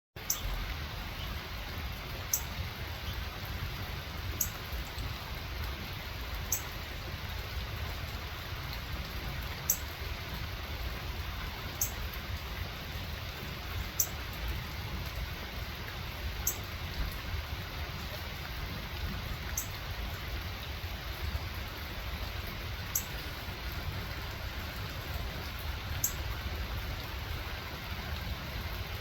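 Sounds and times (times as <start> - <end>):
bird chip calls: 0.2 - 0.6.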